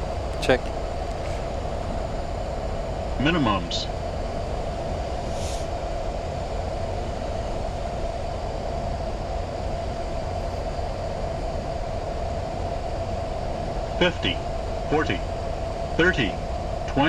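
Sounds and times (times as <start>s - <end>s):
airflow and engine noise: 0.0s - 17.0s
constant mid-pitched hum: 0.0s - 17.0s.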